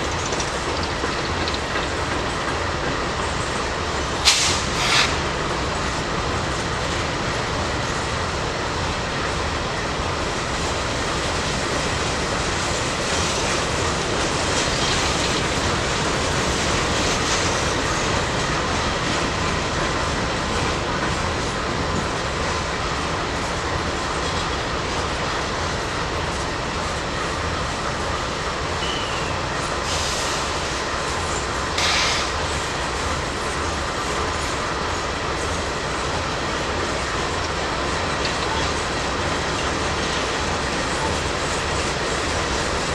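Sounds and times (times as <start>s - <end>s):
train wheels rumbling on rails: 0.0s - 42.9s
faint high wheel squeal: 28.8s - 30.3s.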